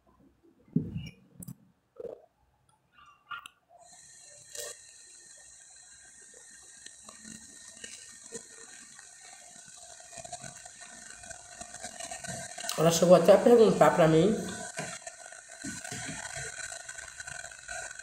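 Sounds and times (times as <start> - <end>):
steady hiss: 3.8 - 18.0.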